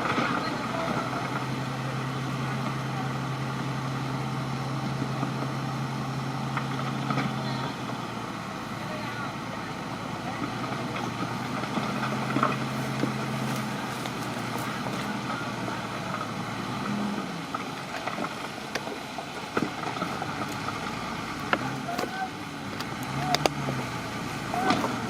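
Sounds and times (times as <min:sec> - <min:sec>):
bulldozer diesel engine running: 0:00.0 - 0:25.0
sharp clicks and knocks: 0:22.7 - 0:23.8.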